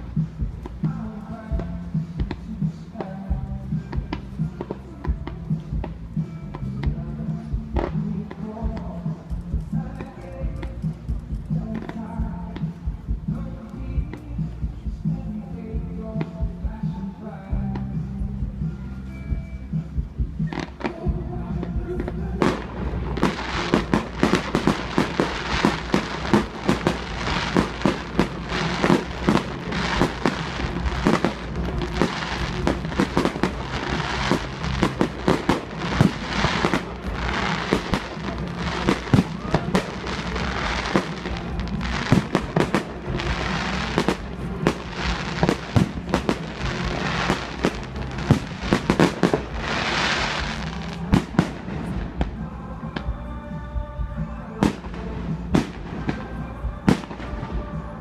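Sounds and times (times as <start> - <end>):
firework crackling: 0.0 - 15.4, 20.3 - 52.5
firework crackling hiss: 22.1 - 52.0
firework shells bursting: 22.4 - 51.6.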